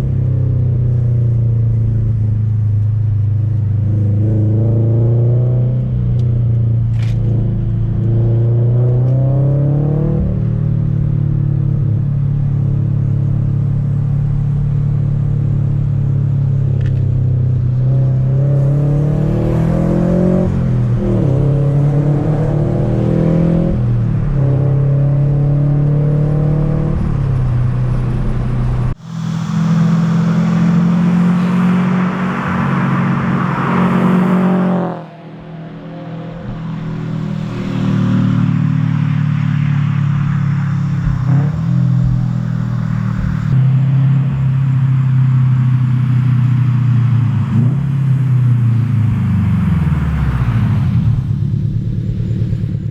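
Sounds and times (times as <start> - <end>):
road noise: 0.0 - 52.9
car engine revving: 16.8 - 52.9.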